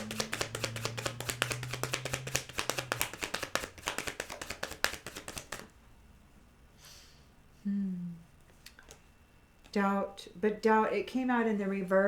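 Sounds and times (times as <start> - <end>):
cards being shuffled: 0.0 - 5.7.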